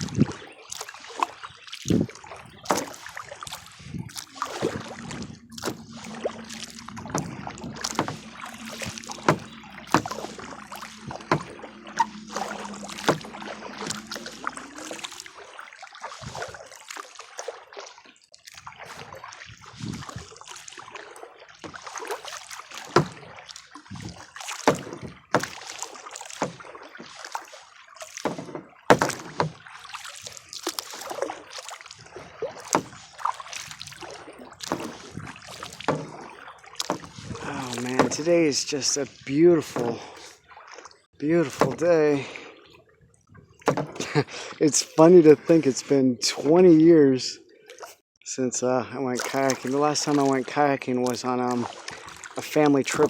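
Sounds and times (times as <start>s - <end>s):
water dripping: 0.0s - 45.0s, 49.1s - 53.0s
paddle splashing in water: 0.0s - 48.0s, 48.9s - 53.0s
low hum: 4.0s - 15.8s.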